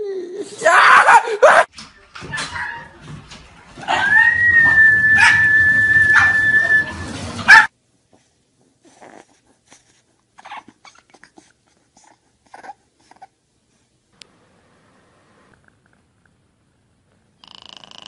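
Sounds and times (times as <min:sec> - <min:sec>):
dog yelping: 0:02.3 - 0:03.0, 0:03.8 - 0:07.7, 0:10.4 - 0:11.2
dog whimpering: 0:03.8 - 0:07.0, 0:08.8 - 0:13.3
dog whining: 0:03.8 - 0:07.7, 0:08.9 - 0:11.4, 0:12.0 - 0:13.3.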